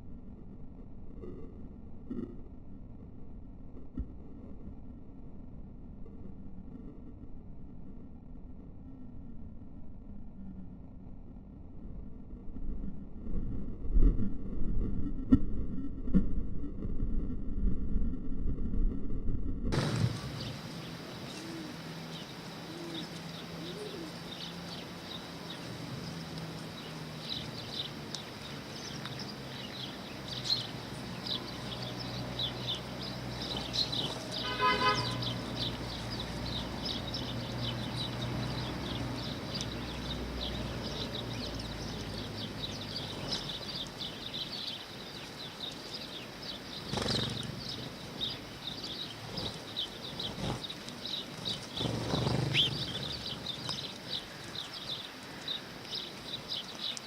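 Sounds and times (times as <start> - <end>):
low steady hum: 0.0 - 57.0
sparrows chirping: 19.8 - 57.0
loud pitched bird call: 28.9 - 44.8, 46.5 - 55.7.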